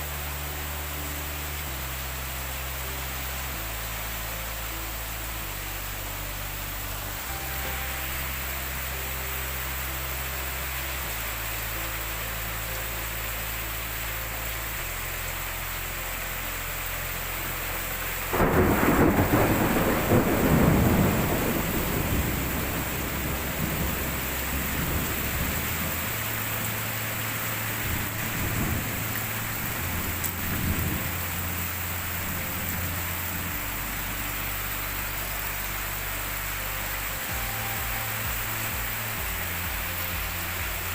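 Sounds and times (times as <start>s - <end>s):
heavy rain falling: 0.0s - 40.9s
thunder crack and rumble: 18.3s - 25.9s.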